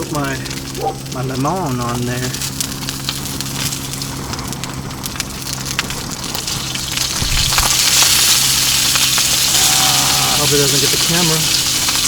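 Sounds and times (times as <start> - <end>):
fish frying in a pan: 0.0 - 12.0
steady low hum: 0.0 - 12.0
juice spattering in hot pan: 5.6 - 12.0.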